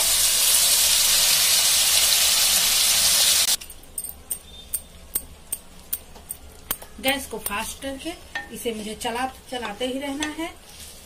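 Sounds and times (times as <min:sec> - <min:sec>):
paste sizzling in hot oil: 0:00.0 - 0:03.6.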